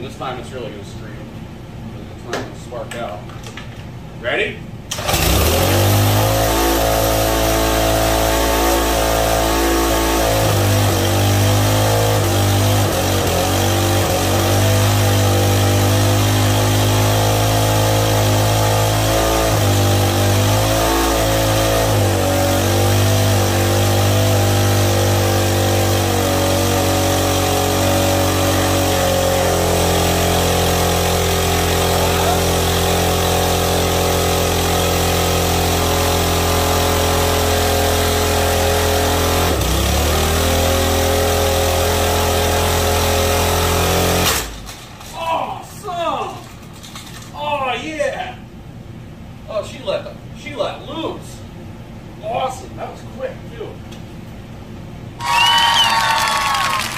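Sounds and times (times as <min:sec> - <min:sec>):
lawn mower engine running flat out: 0:04.9 - 0:21.5, 0:22.1 - 0:44.6.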